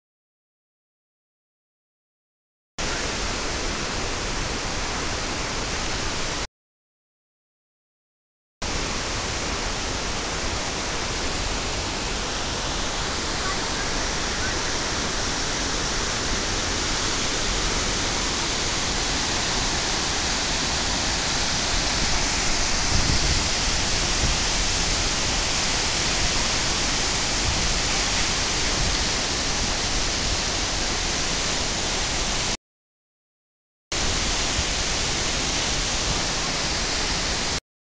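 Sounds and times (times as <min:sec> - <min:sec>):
waterfall rushing: 0:08.6 - 0:32.6, 0:34.0 - 0:37.6.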